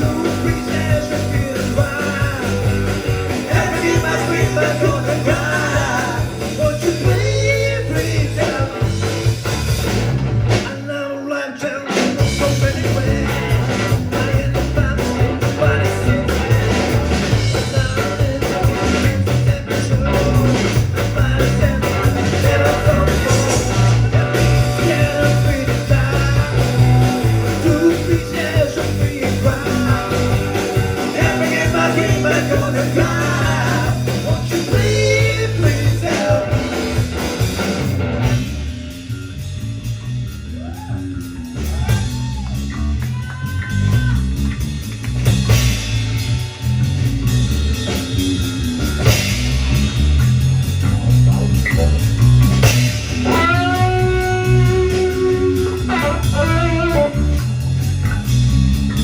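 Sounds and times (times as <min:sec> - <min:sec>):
live rock band playing: 0:00.0 - 0:59.0
electric guitar bending lead notes: 0:11.8 - 0:40.3, 0:47.0 - 0:59.0.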